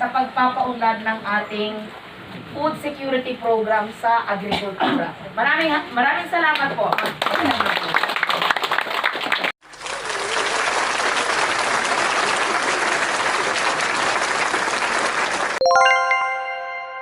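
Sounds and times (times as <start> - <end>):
audience applauding: 6.9 - 15.6
struck chime ringing: 15.6 - 17.0.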